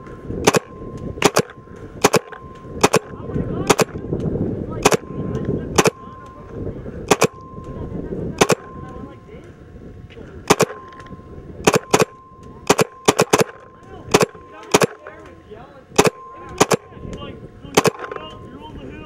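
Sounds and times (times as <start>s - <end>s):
faint steady high tone: 0.0s - 19.0s
paintball markers firing: 0.4s - 5.0s, 10.5s - 10.8s, 11.6s - 12.1s, 12.7s - 15.4s, 16.0s - 16.9s.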